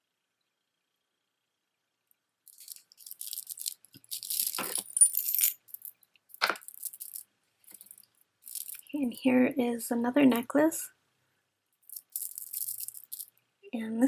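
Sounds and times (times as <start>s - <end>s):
beads and chain clinking: 2.5s - 9.2s, 11.8s - 13.4s
beads clacking: 2.5s - 9.2s, 11.8s - 13.4s.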